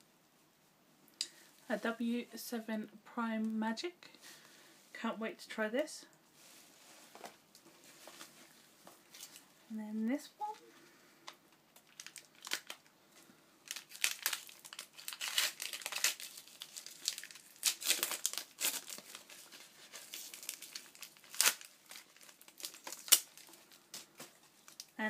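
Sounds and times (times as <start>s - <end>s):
paper crinkling: 11.8s - 12.9s, 13.6s - 25.0s
paper ripping: 13.7s - 23.5s.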